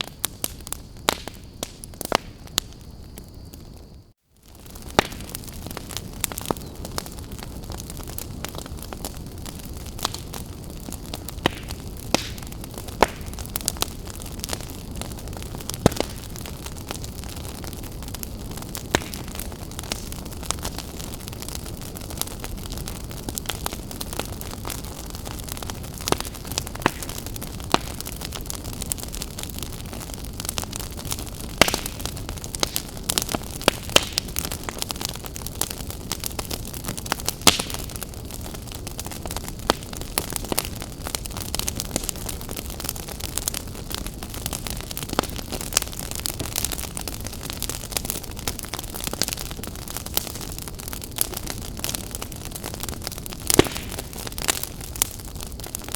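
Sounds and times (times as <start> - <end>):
wood fire crackling and popping: 0.0 - 55.9.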